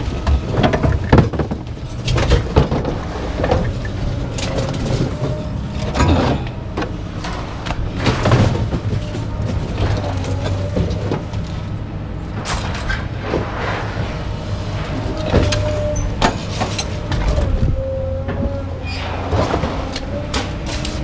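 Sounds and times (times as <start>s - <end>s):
short squeaks: 15.2s - 20.0s.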